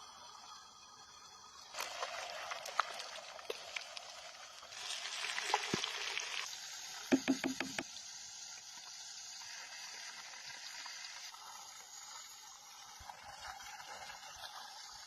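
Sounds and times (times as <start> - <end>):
quick knocks: 7.1 - 7.8.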